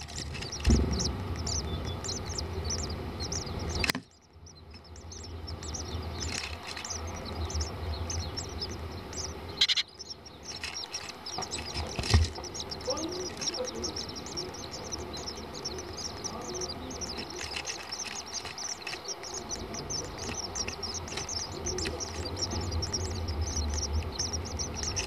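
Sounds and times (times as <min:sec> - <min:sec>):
low steady rumble: 0:00.0 - 0:25.0
small birds chirping: 0:00.0 - 0:25.0
thump: 0:00.6 - 0:01.2.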